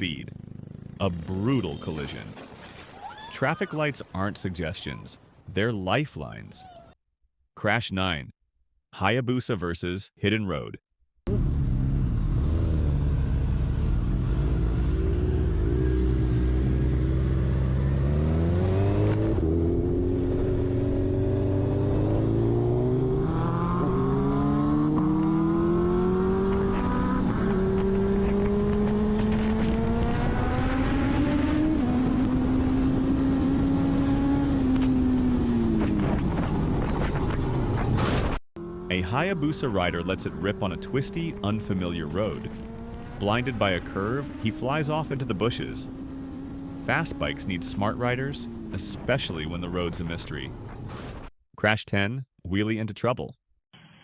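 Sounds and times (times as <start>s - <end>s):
motorcycle engine accelerating: 0.2s - 1.6s, 11.3s - 49.8s.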